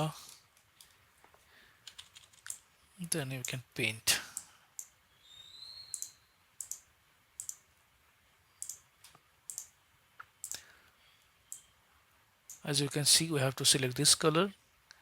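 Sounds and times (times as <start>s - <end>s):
computer mouse clicks: 5.9s - 7.6s, 8.6s - 10.6s.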